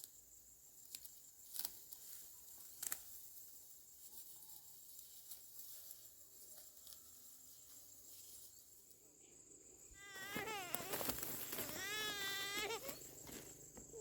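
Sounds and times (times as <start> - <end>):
insects droning: 0.0 - 14.0
small child crying: 10.0 - 11.0, 11.6 - 13.0.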